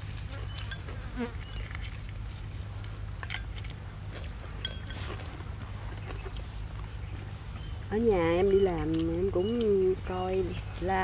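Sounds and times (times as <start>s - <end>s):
people chewing: 0.0s - 11.0s
steady low hum: 0.0s - 11.0s
chopsticks clinking on bowls: 4.6s - 5.1s.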